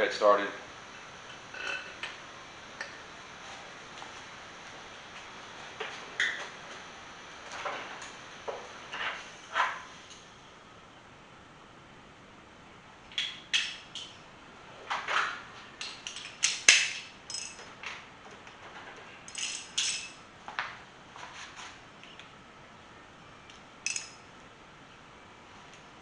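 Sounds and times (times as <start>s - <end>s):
metal bolts clinking: 16.0s - 17.7s, 19.3s - 20.2s, 23.8s - 24.3s.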